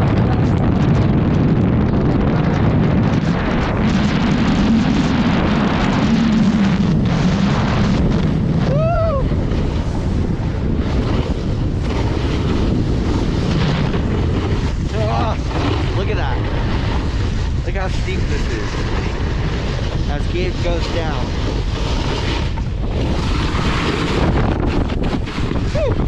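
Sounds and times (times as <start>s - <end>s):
blizzard wind buffeting microphone: 0.0s - 26.0s.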